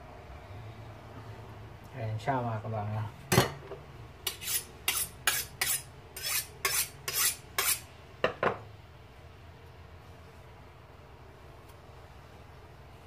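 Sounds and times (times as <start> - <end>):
knife scraping on honing rod: 4.2 - 7.9.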